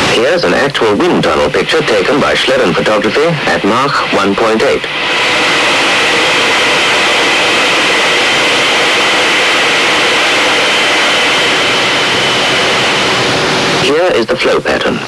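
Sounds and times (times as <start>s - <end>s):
rush of high-speed airflow: 0.0s - 14.1s.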